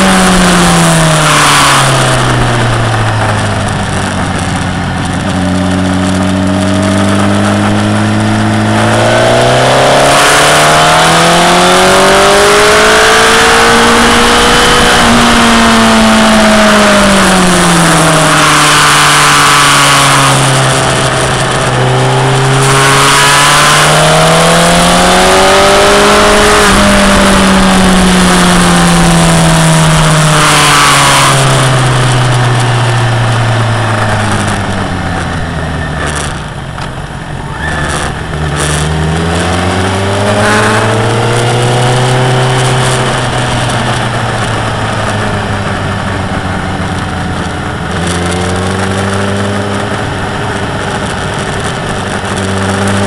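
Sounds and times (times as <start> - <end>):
motorcycle engine revving: 0.0 - 53.0
wind noise: 0.0 - 53.0.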